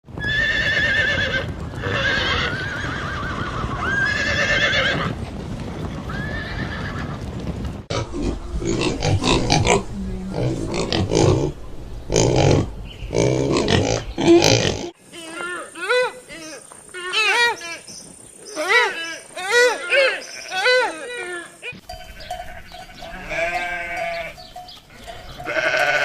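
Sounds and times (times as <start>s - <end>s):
animal crying: 12.2s - 17.9s, 18.5s - 26.0s.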